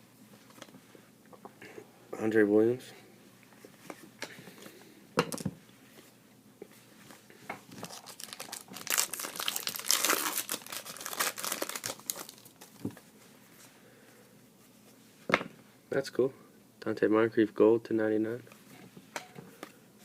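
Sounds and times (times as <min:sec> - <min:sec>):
packaging crinkling and rustling: 0:07.7 - 0:13.0.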